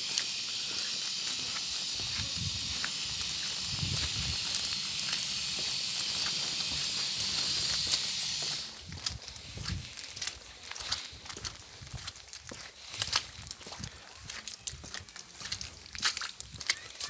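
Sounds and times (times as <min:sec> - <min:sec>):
gas leak hissing: 0:00.0 - 0:10.0.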